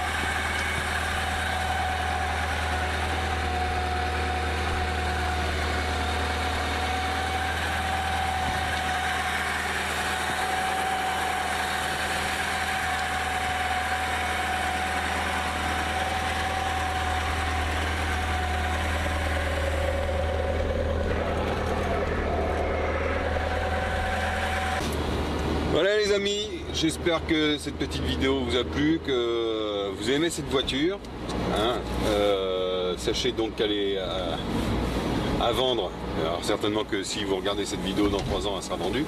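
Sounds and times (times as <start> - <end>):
car engine idling: 0.0 - 29.8.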